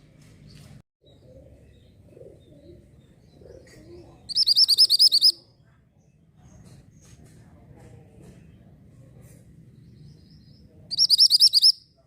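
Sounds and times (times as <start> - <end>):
songbird whistled trill: 4.3 - 5.4, 10.9 - 11.9.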